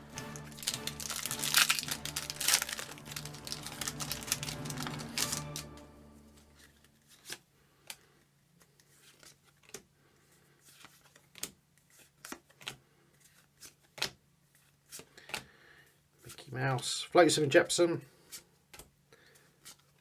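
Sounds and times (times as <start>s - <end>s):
cards being flicked through: 0.0s - 5.9s.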